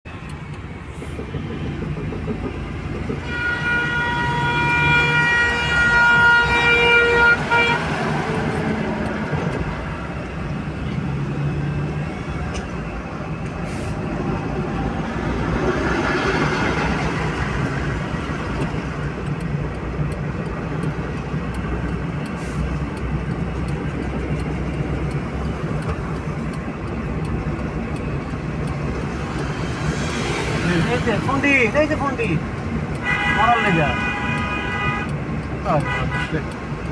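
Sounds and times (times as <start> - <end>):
car engine and road noise: 0.0 - 36.9
long vehicle horn blast: 3.2 - 8.2, 33.0 - 35.1, 35.7 - 36.6.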